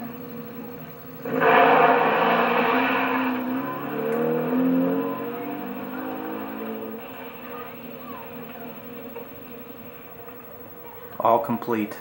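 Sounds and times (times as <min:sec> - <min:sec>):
car engine accelerating: 0:00.0 - 0:11.1.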